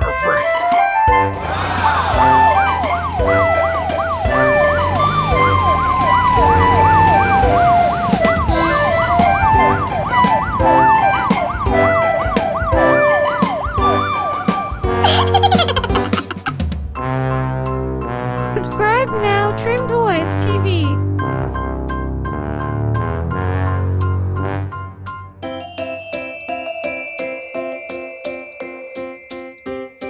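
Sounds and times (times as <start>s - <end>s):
children's music with steady beat: 0.0s - 21.2s, 25.4s - 30.0s
police siren wailing: 1.4s - 14.8s.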